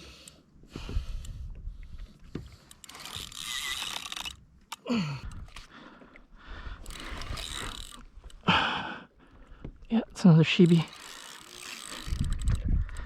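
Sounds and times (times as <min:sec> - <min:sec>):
fishing reel gears grinding and clicking: 0:02.5 - 0:05.7, 0:06.8 - 0:08.4, 0:10.1 - 0:13.0.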